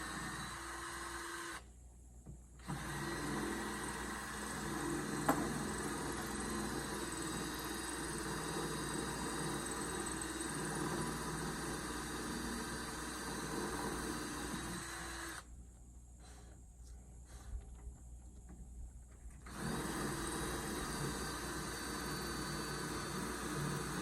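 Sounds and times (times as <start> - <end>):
power drill boring: 0.0 - 1.7, 2.6 - 15.5, 19.4 - 24.0.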